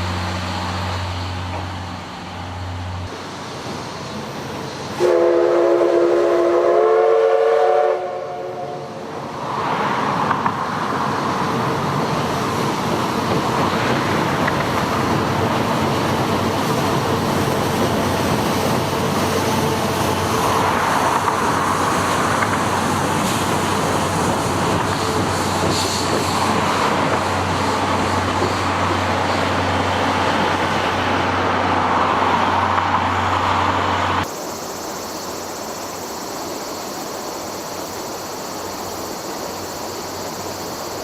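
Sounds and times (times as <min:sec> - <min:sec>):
train rolling past: 0:00.0 - 0:41.0
steam locomotive whistle: 0:05.0 - 0:09.0.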